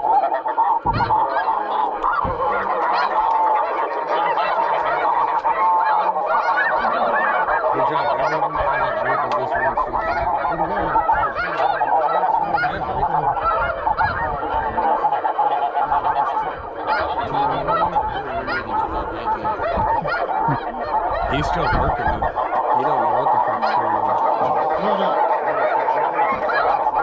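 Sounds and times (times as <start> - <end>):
flock of geese honking: 0.0 - 27.0.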